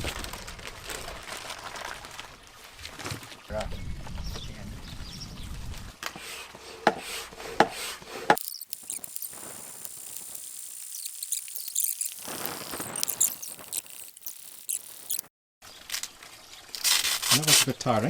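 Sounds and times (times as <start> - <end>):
air hissing: 8.4 - 15.3.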